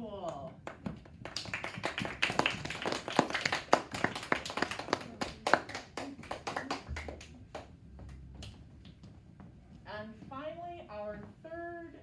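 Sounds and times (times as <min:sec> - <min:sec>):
children clapping: 0:00.3 - 0:08.6.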